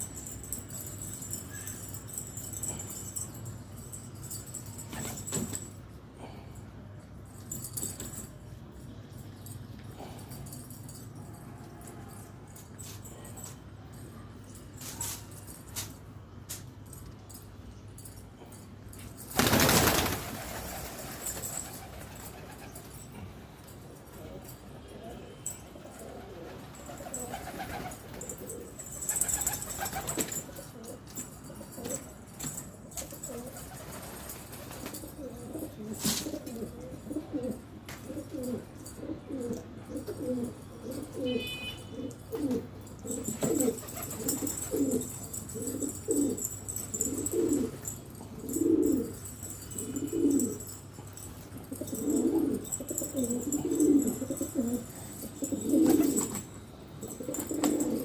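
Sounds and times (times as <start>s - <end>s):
pigeons cooing: 25.8s - 32.0s, 33.0s - 50.8s, 51.6s - 58.0s.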